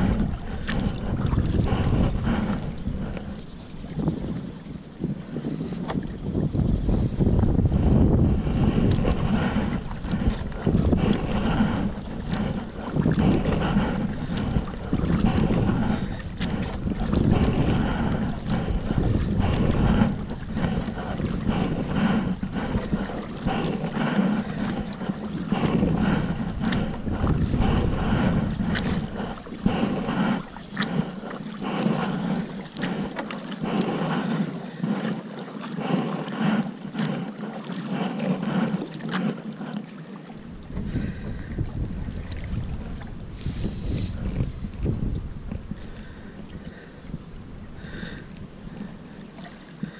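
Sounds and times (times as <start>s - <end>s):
water splashing and dripping: 0.0s - 4.5s, 8.5s - 39.8s
kayak paddle strokes: 0.0s - 49.9s
wind rumble on microphone: 0.0s - 49.9s.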